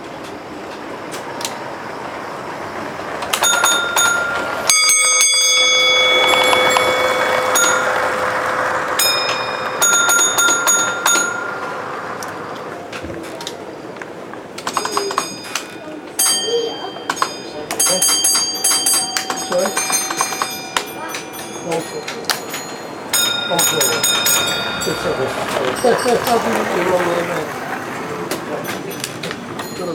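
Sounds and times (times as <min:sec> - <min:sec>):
small bells struck: 0:03.3 - 0:12.6, 0:14.7 - 0:27.5, 0:28.6 - 0:29.9.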